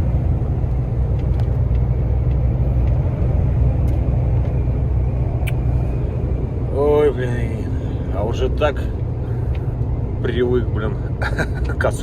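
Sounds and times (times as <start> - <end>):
road noise: 0.0 - 12.0
truck diesel engine droning: 0.0 - 12.0.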